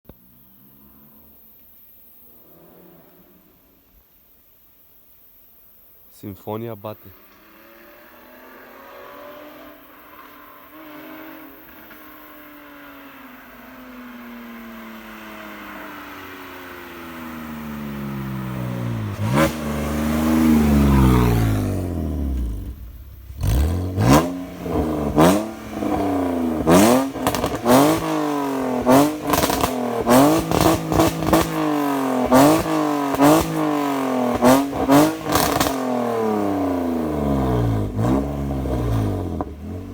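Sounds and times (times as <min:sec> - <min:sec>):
loud car engine revving: 0:07.2 - 0:12.9, 0:13.5 - 0:39.9
exhaust cracks: 0:14.2 - 0:39.9.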